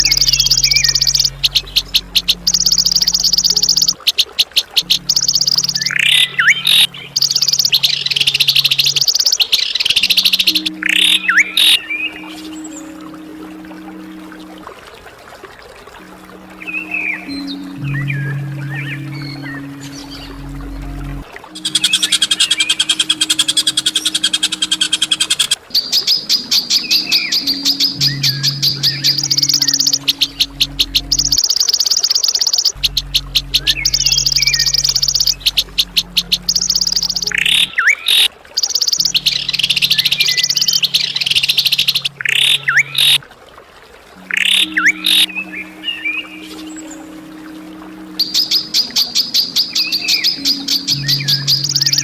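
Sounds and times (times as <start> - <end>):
low steady hum: 0.0 - 9.0, 10.0 - 25.8, 26.4 - 31.9, 32.6 - 38.4, 39.0 - 43.3, 44.1 - 52.0
songbird rattling song: 0.0 - 12.7, 21.5 - 43.2, 48.2 - 52.0.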